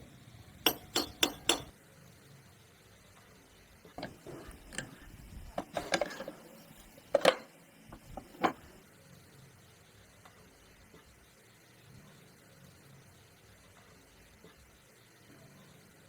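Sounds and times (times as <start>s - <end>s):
tools and metal parts clinking: 0.7s - 1.7s, 4.0s - 8.8s.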